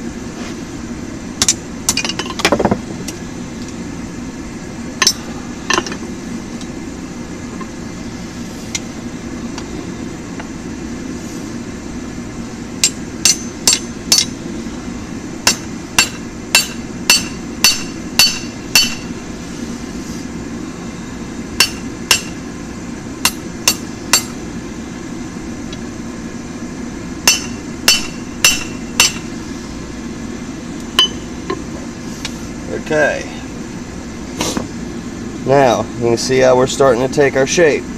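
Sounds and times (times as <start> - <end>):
steady low hum: 0.0 - 37.9
hammer striking steel on anvil: 5.0 - 6.0, 12.8 - 14.4, 15.4 - 19.1, 21.6 - 22.4, 23.2 - 24.4, 27.2 - 29.3, 31.0 - 31.6.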